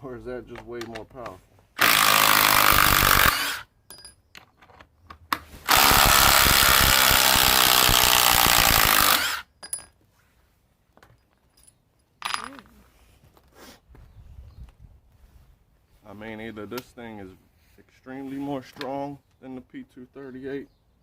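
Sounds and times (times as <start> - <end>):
impact driver hammering screw: 1.8 - 3.6, 5.7 - 9.5.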